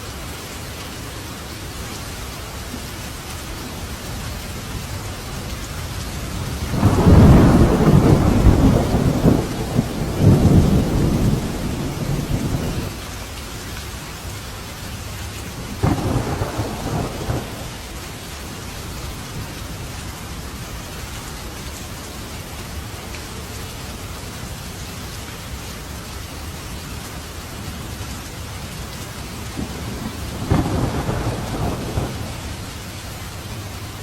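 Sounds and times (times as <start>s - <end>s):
steady rain: 0.0s - 34.0s
thunder rumbling: 6.4s - 13.0s, 15.6s - 18.0s, 29.4s - 33.1s.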